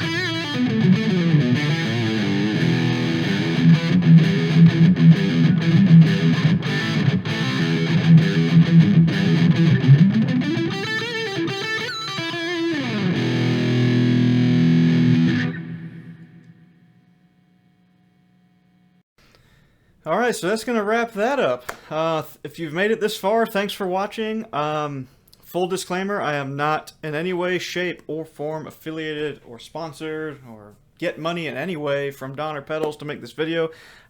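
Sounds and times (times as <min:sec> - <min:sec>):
distorted electric guitar: 0:00.0 - 0:17.8.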